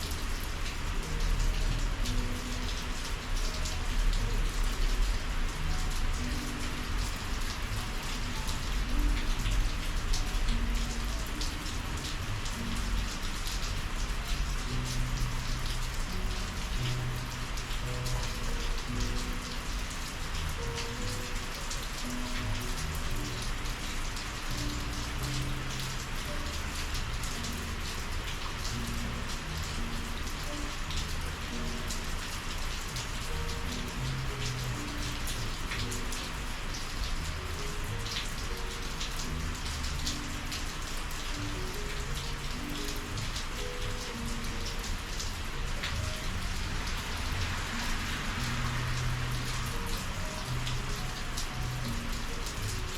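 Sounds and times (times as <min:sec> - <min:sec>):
raindrop strikes: 0:00.0 - 0:36.4
steady rain hiss: 0:00.0 - 0:52.9.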